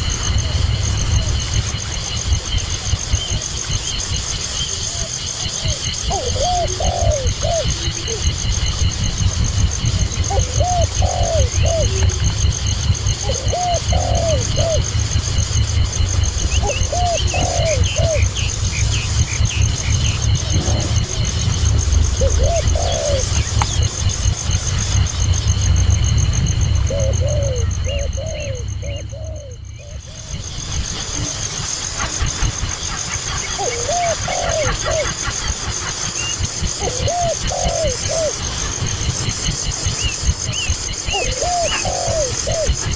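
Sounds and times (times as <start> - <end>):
dove cooing: 4.9 - 15.2, 15.8 - 24.5, 26.7 - 30.4, 33.5 - 35.4, 36.8 - 38.5, 41.0 - 42.9
low rumble: 6.6 - 32.8.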